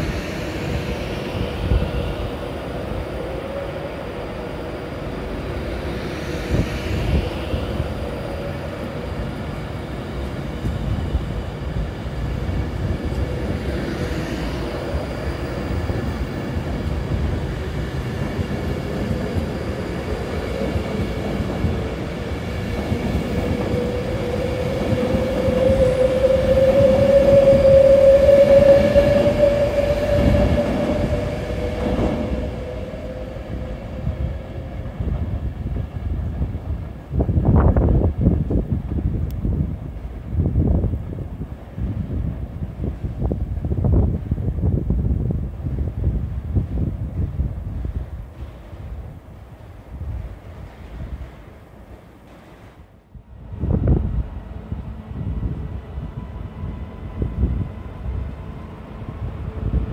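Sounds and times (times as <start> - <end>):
humming train motor: 0.0 - 35.6
train rumbling: 0.0 - 59.9.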